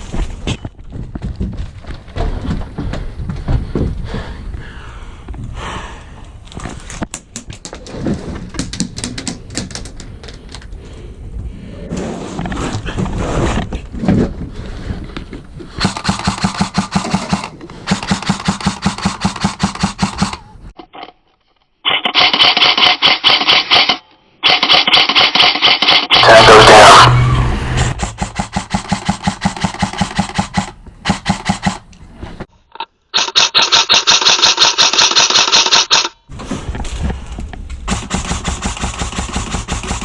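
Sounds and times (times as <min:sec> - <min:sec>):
airsoft guns firing full-auto bursts: 0:15.8 - 0:20.4, 0:37.9 - 0:40.0.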